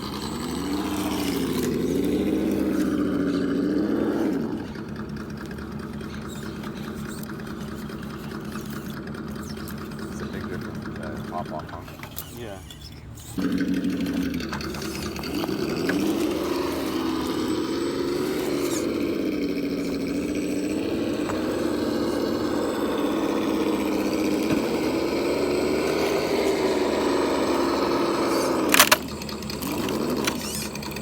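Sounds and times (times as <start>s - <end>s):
simulated engine drone: 0.0s - 31.0s.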